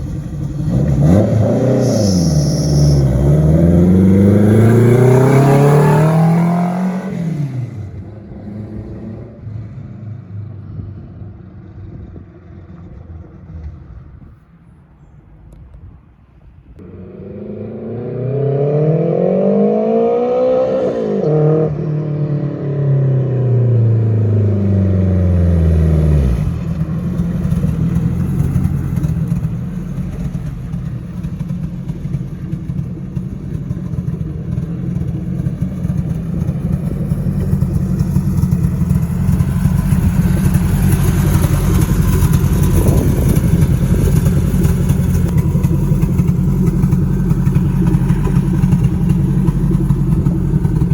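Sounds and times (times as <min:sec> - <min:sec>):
car engine revving and idling: 0:00.0 - 0:15.9, 0:16.7 - 0:50.9.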